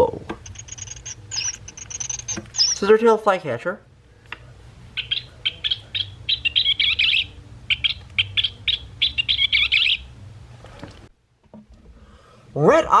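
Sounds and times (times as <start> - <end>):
recorded bird chirps and chatter: 1.3 - 2.9, 4.9 - 10.1
faint electronic speaker hum: 3.8 - 11.1.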